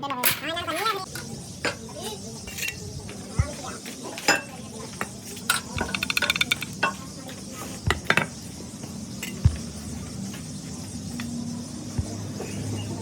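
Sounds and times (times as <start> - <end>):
metal tools clinking: 2.5 - 2.8, 5.5 - 7.0.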